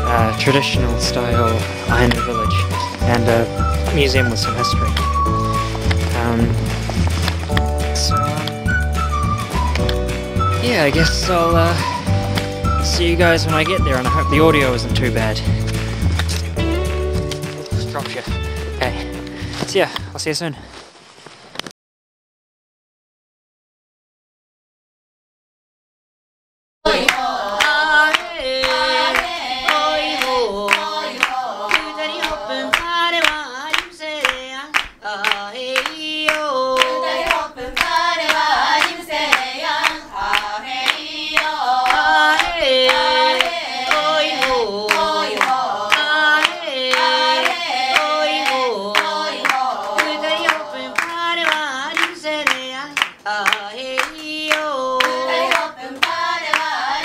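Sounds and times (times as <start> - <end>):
hand claps: 1.6 - 11.1, 11.8 - 12.7, 15.6 - 18.4, 26.9 - 57.0
group singing in unison: 26.9 - 34.2, 35.0 - 57.0.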